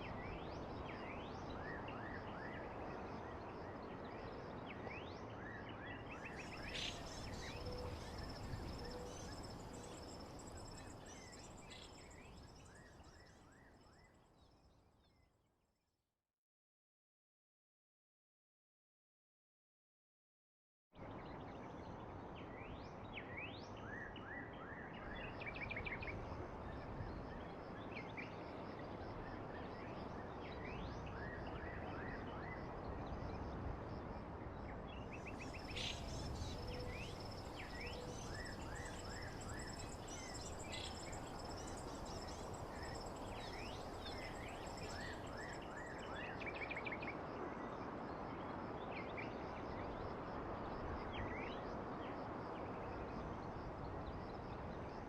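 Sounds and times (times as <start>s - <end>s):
songbirds chirping and trilling: 4.8s - 13.5s, 35.0s - 47.1s.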